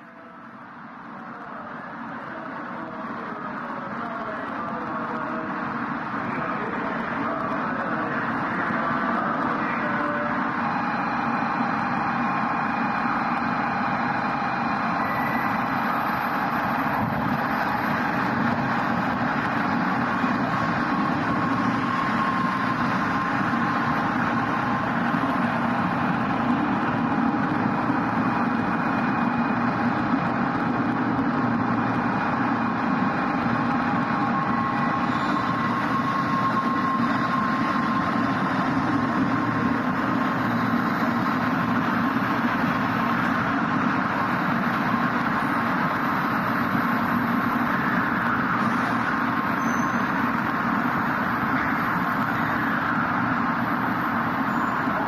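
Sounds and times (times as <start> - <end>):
faint train whine: 0.0 - 55.0
train rolling noise: 0.0 - 55.0.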